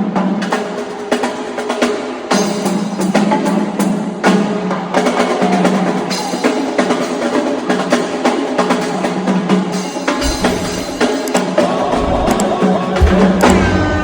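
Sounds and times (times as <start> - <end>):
backing track: 10.1 - 14.0
deep bass: 10.2 - 11.1, 11.8 - 14.0.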